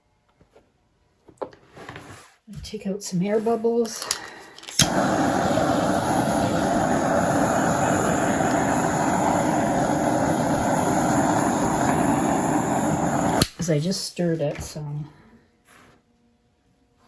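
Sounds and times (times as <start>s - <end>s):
hot-air blower running: 4.6s - 13.6s.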